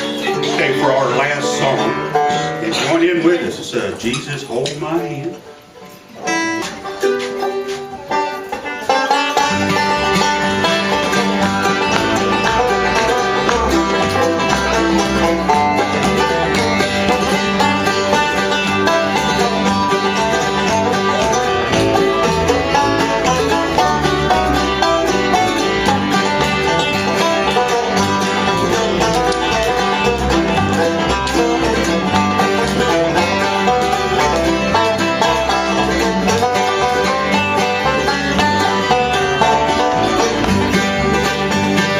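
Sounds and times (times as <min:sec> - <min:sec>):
banjo: 0:00.0 - 0:41.9
bluegrass band playing: 0:00.0 - 0:41.9.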